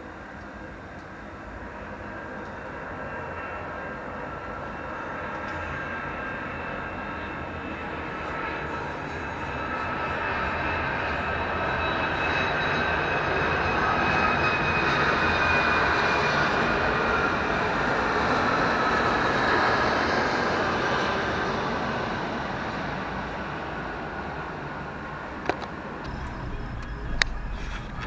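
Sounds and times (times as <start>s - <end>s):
large vehicle passing with whine: 26.0s - 28.0s.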